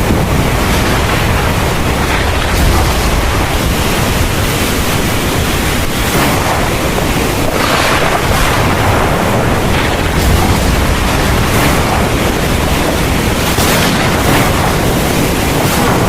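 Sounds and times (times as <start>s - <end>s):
deep low rumble: 0.0s - 15.1s
heavy rain pouring: 0.0s - 16.0s.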